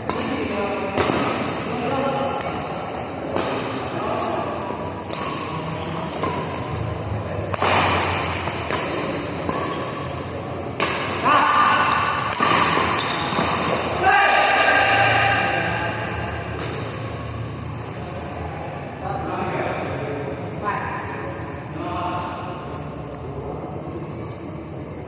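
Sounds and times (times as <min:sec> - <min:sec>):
racket hitting shuttlecock: 0:00.0 - 0:01.6, 0:02.3 - 0:14.7, 0:15.4 - 0:17.4.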